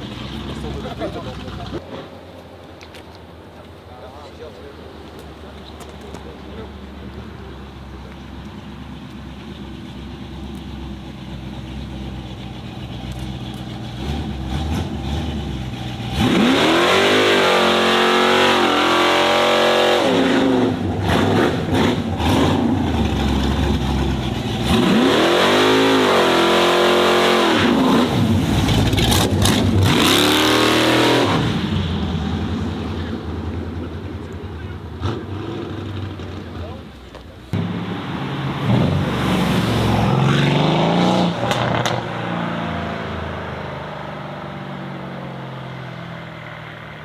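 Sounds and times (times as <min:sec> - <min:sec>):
car engine revving: 0:09.6 - 0:47.0.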